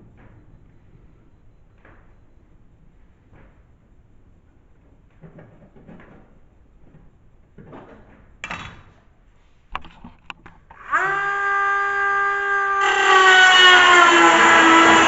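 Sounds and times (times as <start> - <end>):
grinder whining: 10.7 - 15.0
grinder grinding metal: 10.8 - 15.0.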